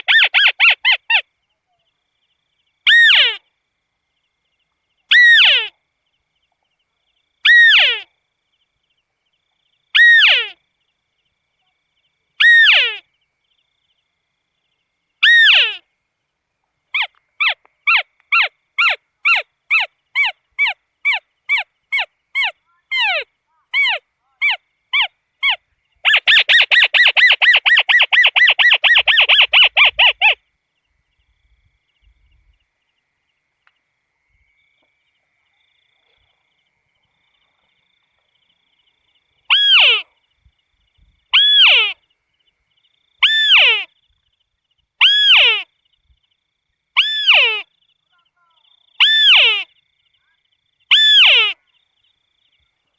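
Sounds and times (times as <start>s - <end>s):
crake calling: 15.2s - 15.9s, 16.9s - 30.4s, 38.8s - 40.2s, 41.3s - 42.1s, 43.2s - 44.1s, 45.0s - 45.8s, 46.9s - 51.8s.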